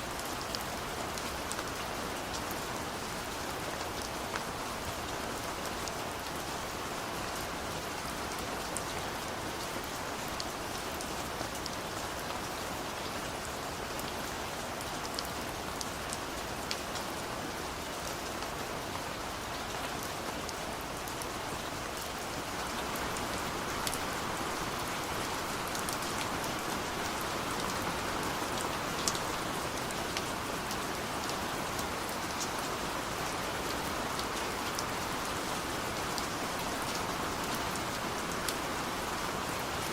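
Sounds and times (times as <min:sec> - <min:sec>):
steady rain hiss: 0:00.0 - 0:39.9
raindrops pattering: 0:20.0 - 0:39.9.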